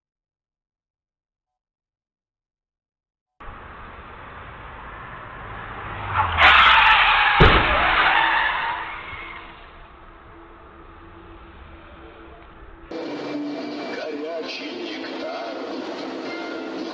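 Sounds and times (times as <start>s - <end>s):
car tyres skidding: 3.4s - 12.9s
traffic noise: 3.4s - 16.9s
heavy crash impact: 6.6s - 12.9s.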